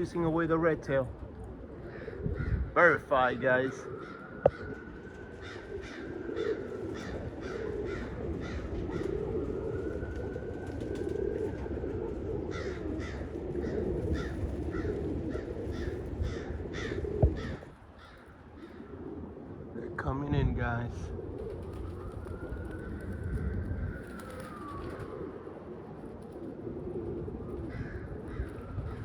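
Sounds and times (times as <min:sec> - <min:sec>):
wind rumble on microphone: 0:00.0 - 0:29.0
crow cawing: 0:01.8 - 0:09.2, 0:12.5 - 0:19.0, 0:27.7 - 0:29.0.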